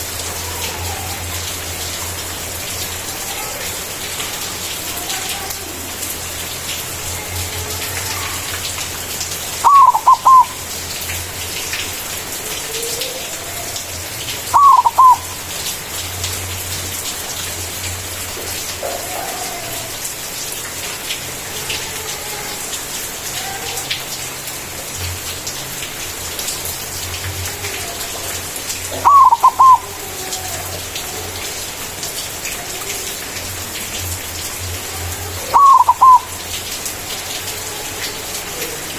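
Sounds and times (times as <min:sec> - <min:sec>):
dove cooing: 0:09.6 - 0:10.6, 0:14.5 - 0:15.3, 0:28.9 - 0:30.6, 0:35.4 - 0:36.4
faint bird calls: 0:09.6 - 0:10.6, 0:14.5 - 0:15.4, 0:28.9 - 0:30.6, 0:35.4 - 0:36.4.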